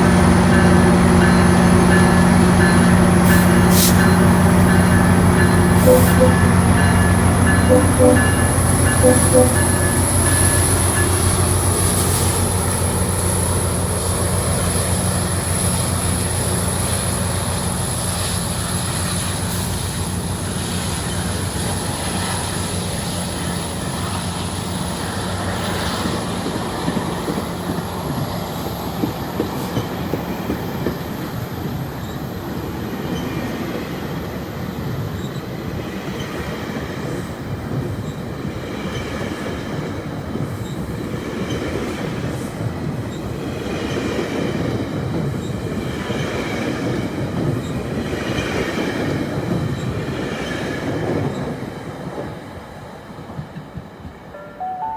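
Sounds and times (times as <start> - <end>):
rail clicks: 0.0 - 24.2
train wheel noise: 0.0 - 34.0
train engine drone: 0.0 - 51.2
high wheel squeal: 0.6 - 11.2.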